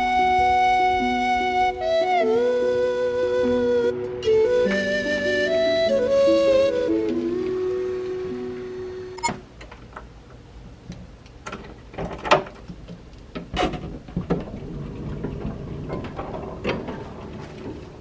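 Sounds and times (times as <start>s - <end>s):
flute music: 0.0s - 9.3s.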